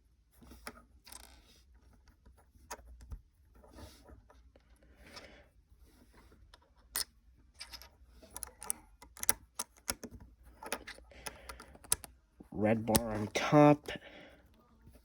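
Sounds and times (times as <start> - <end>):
plastic toy bricks clicking: 6.9 - 12.1.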